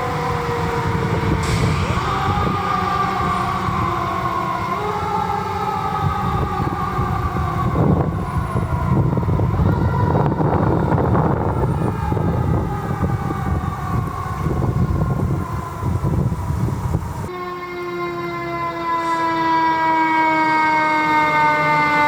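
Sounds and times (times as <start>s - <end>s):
low engine and road rumble: 0.0s - 17.3s
fire truck siren: 0.0s - 22.0s.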